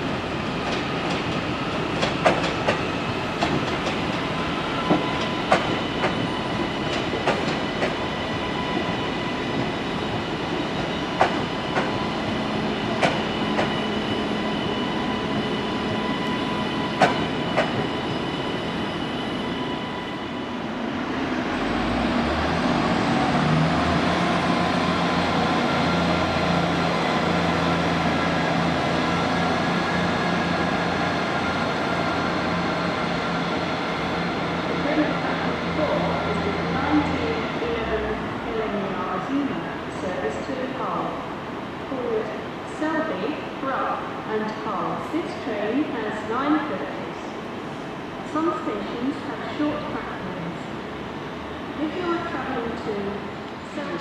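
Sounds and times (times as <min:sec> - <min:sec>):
train wheels clicking over rail joints: 0:02.0 - 0:02.8, 0:03.4 - 0:04.2, 0:04.9 - 0:08.0, 0:11.2 - 0:12.0, 0:13.0 - 0:13.8, 0:17.0 - 0:17.8
steady high whine: 0:07.6 - 0:21.5.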